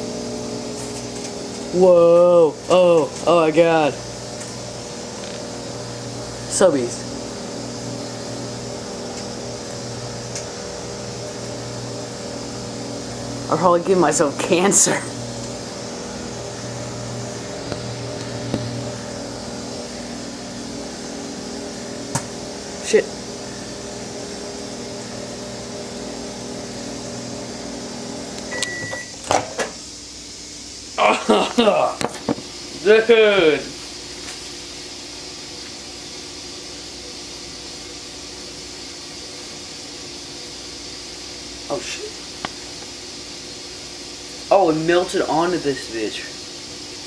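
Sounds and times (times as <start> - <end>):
microwave oven humming: 0.0 - 47.0
microwave beep: 28.4 - 29.2.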